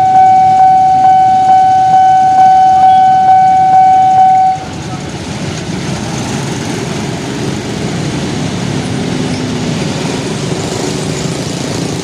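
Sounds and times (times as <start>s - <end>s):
faint held tone: 0.0s - 4.7s
motor vehicle engines running: 0.0s - 12.0s.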